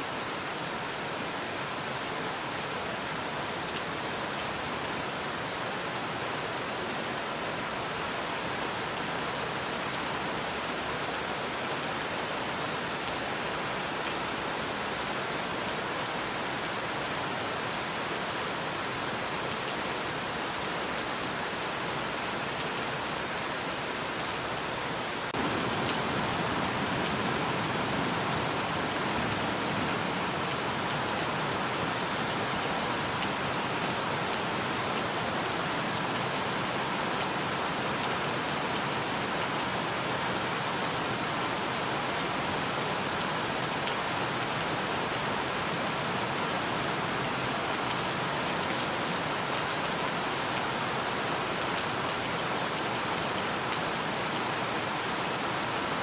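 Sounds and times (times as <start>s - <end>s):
heavy rain pattering: 16.2s - 38.0s.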